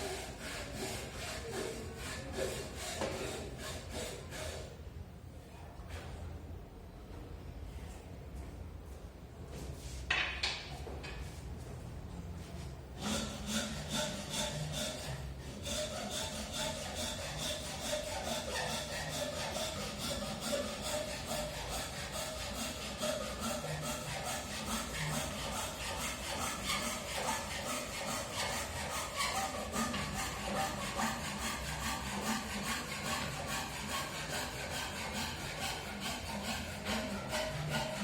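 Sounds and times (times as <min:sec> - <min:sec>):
rhythmic wood scraping strokes: 0:00.0 - 0:04.8, 0:12.4 - 0:38.0.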